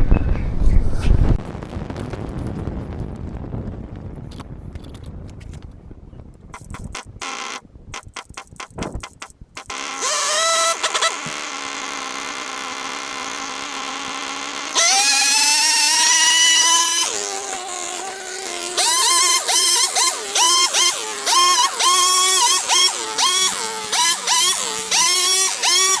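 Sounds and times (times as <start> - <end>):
small two-stroke engine revving: 6.6 - 26.0.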